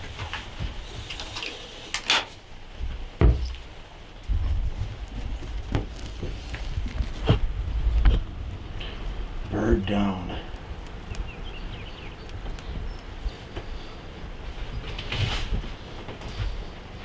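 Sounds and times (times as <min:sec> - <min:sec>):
low rumbling wind surges: 0:02.4 - 0:17.0
microphone handling noise: 0:02.8 - 0:09.5, 0:12.3 - 0:16.9.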